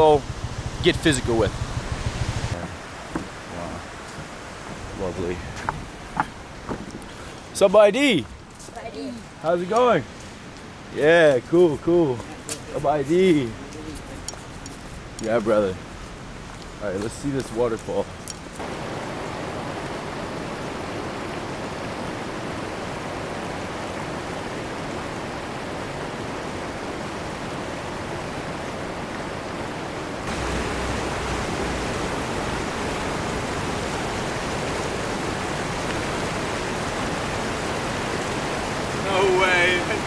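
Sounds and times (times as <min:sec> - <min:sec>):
waterfall rushing: 0:00.0 - 0:08.1, 0:18.6 - 0:40.0.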